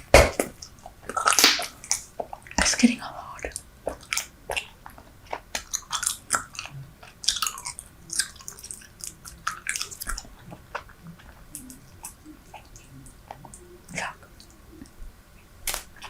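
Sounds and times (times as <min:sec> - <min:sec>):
chewing gum smacks and clicks: 0:03.4 - 0:15.0.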